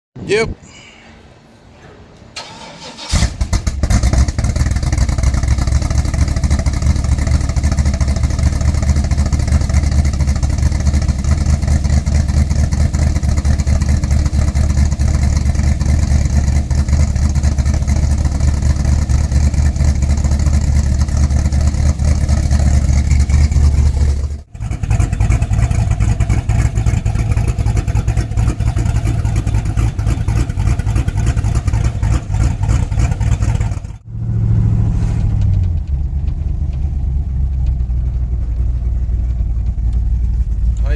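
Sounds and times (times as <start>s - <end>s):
loud deep exhaust note: 3.2s - 40.9s.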